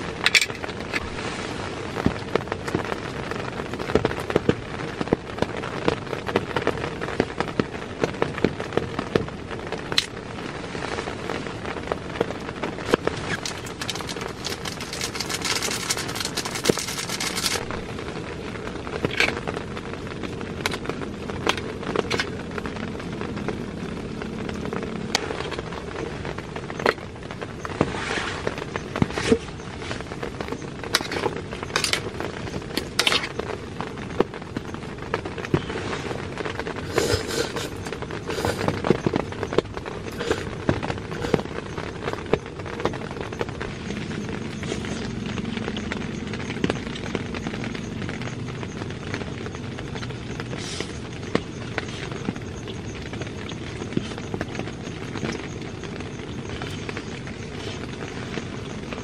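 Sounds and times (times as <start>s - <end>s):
heavy rain on a tent: 0.0s - 59.0s
sachet crinkling: 13.0s - 17.8s
metal utensil scraping a pan: 13.2s - 17.7s.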